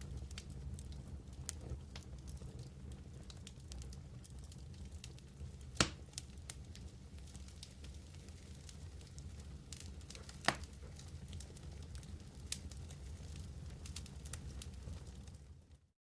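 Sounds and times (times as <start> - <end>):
fire crackling: 0.0 - 15.9
wood fire burning: 0.0 - 15.9
loud wood pop: 5.8 - 6.0.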